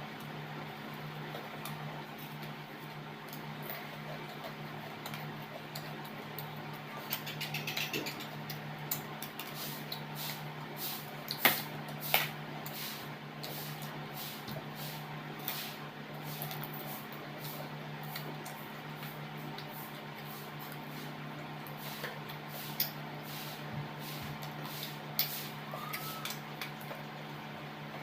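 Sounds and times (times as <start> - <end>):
steady low hum: 0.0 - 28.0
chewing: 0.9 - 10.4
utensil clicking against a plate: 3.3 - 10.1.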